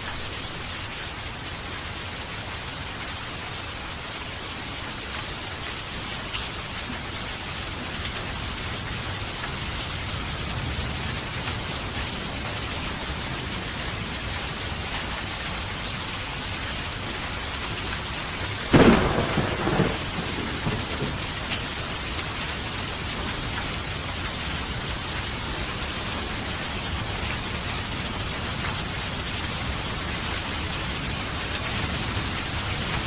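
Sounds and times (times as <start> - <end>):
steady rain falling: 0.0 - 33.0
thunderclap rumbling: 18.6 - 23.6.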